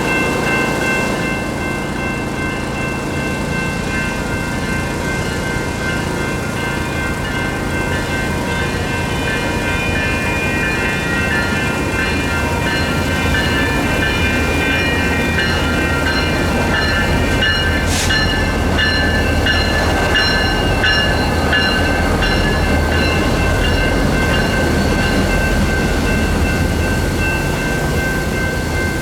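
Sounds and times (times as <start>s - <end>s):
crossing bells ringing: 0.0s - 29.0s
diesel locomotives engine hum: 0.0s - 29.0s.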